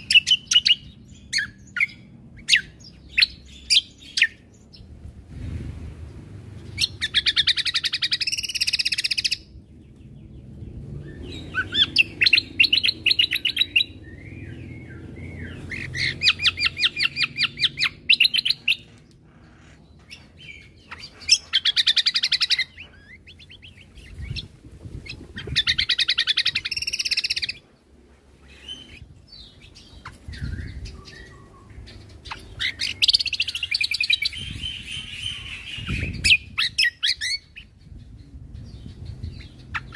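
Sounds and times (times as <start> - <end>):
songbird trilling: 6.7 - 9.6, 11.0 - 27.6, 28.4 - 39.9.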